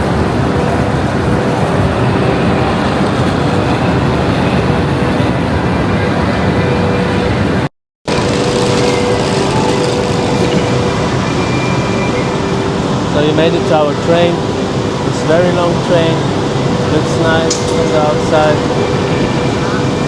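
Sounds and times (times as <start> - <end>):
faint hums: 0.0 - 20.0
railway station rumble and hiss: 0.0 - 20.0.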